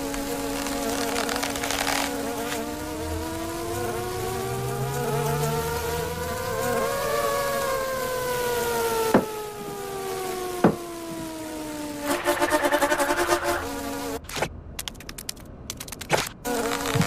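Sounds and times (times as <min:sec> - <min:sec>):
cartoon insect buzzing: 0:00.0 - 0:14.3, 0:16.4 - 0:17.0
sharp clicks: 0:14.2 - 0:16.4.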